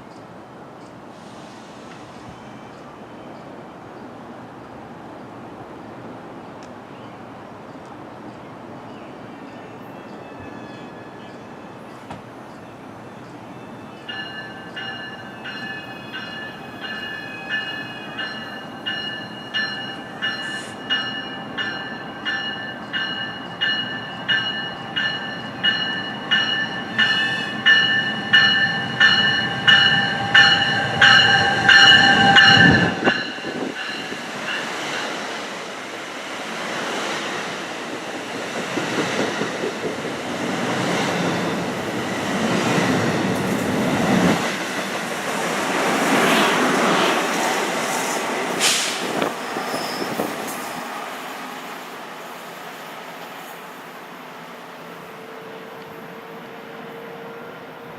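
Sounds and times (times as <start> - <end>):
train bell ringing: 13.2 - 35.2
train wheels rumbling on rails: 14.2 - 52.1.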